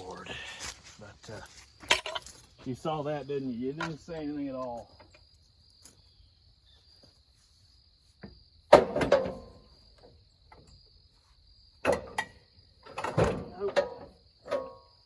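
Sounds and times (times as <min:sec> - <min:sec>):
insect chirring: 0:01.4 - 0:08.7.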